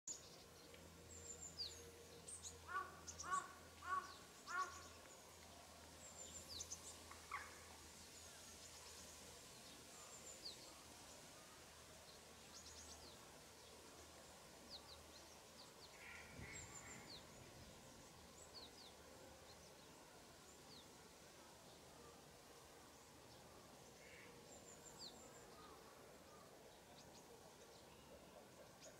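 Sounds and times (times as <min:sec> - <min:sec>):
faint low hum: 0:00.1 - 0:28.9
harsh bird calls: 0:02.7 - 0:04.8.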